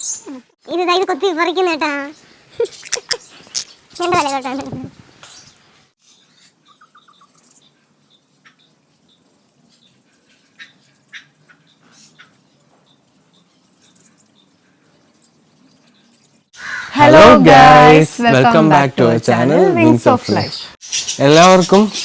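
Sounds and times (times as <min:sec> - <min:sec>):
finches chirping: 0:19.8 - 0:22.0.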